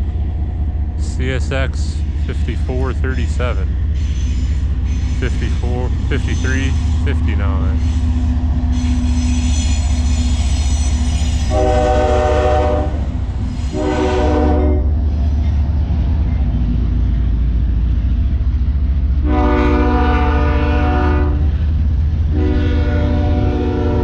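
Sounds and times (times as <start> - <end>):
freight train rumbling: 0.0 - 24.0
locomotive air horn chord: 11.5 - 13.1, 13.7 - 14.9, 19.2 - 21.4, 22.3 - 24.0.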